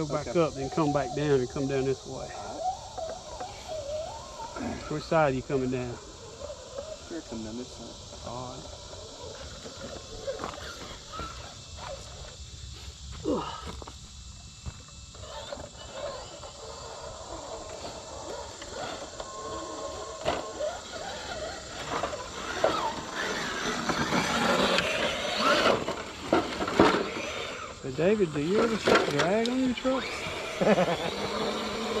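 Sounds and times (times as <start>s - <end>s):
electric motors and gears whining: 0.0s - 32.0s
tyres scraping on rock: 17.4s - 27.8s.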